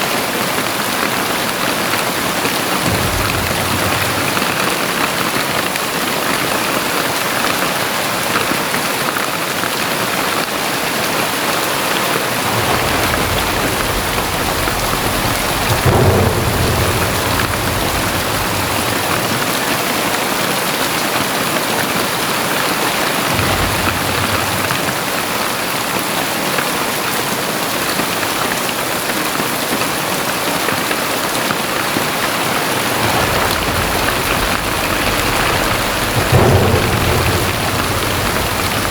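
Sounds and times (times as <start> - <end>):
heavy rain pouring: 0.0 - 38.9
deep low rumbles: 2.8 - 6.0, 12.4 - 20.2, 23.3 - 25.5, 32.2 - 38.9.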